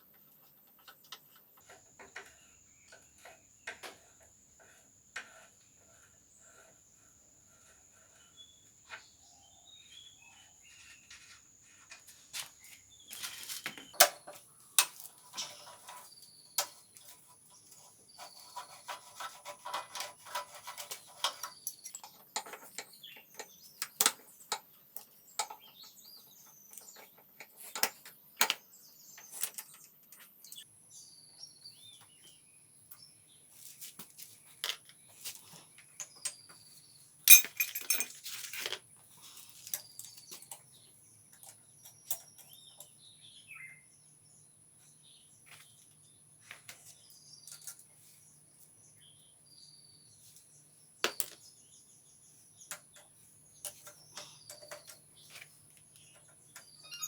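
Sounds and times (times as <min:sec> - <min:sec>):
rattling: 0:37.3 - 0:38.1
metal tools clinking: 0:37.3 - 0:38.7
birds chirping: 0:51.4 - 0:57.0.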